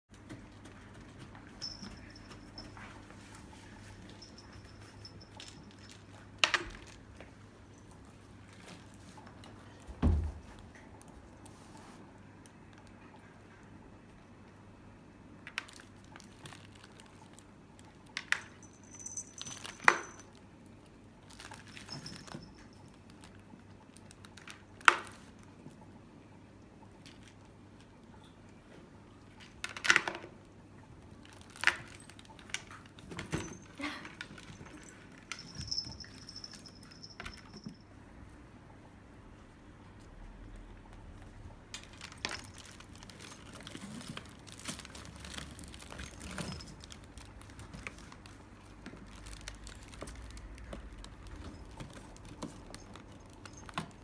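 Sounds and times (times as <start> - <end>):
high jingles: 1.5 - 6.2, 18.5 - 20.3, 33.4 - 37.9.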